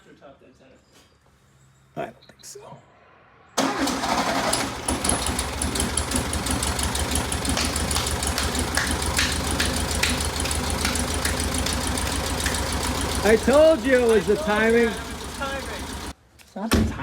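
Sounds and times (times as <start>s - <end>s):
car engine running: 3.6s - 16.1s.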